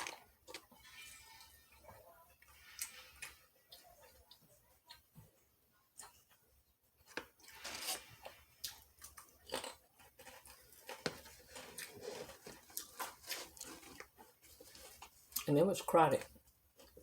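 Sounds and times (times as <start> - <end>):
person chewing sandwich: 0.0 - 15.5.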